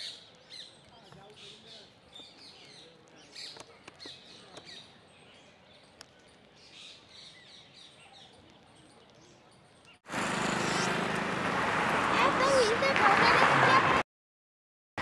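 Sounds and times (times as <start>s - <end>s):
high chirping bird calls: 0.0s - 11.0s
loud noisy outdoor sound: 10.0s - 14.0s.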